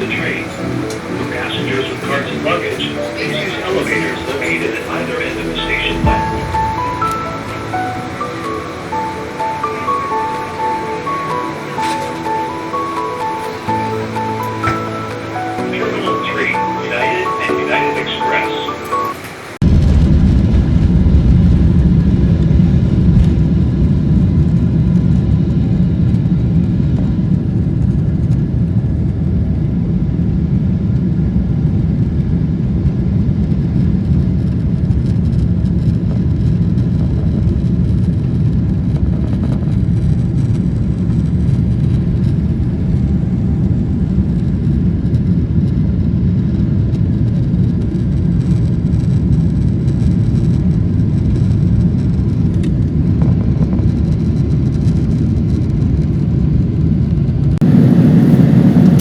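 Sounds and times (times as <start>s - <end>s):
jet engines rumbling in cabin: 0.0s - 59.0s.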